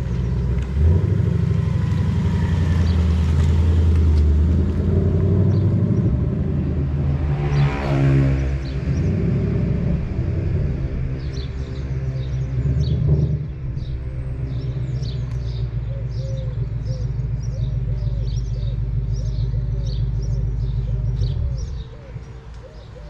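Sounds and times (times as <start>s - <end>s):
car engine idling: 0.0s - 7.6s, 8.6s - 23.0s
birds chirping: 4.8s - 23.0s.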